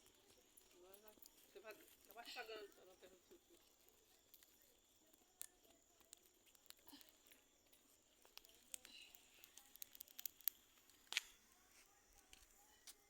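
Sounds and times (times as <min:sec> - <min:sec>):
faint clicks and crackles: 0:00.0 - 0:13.0
sharp snap: 0:09.8 - 0:11.4.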